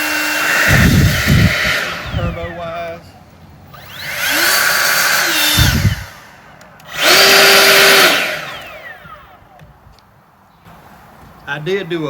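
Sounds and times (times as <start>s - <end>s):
leaf blower whine and air rush: 0.0s - 9.7s.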